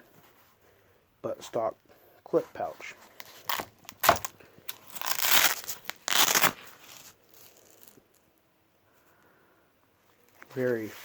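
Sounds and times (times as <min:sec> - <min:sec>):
nylon pouch rustling: 0:03.1 - 0:08.2
nylon pouch ripping rasps: 0:03.2 - 0:08.2.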